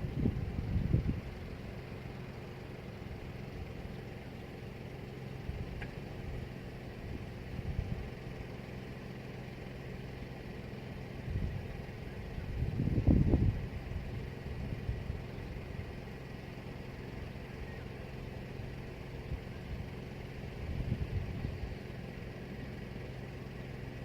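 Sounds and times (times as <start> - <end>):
wind rumbling on microphone: 0.0 - 1.4, 12.4 - 13.8.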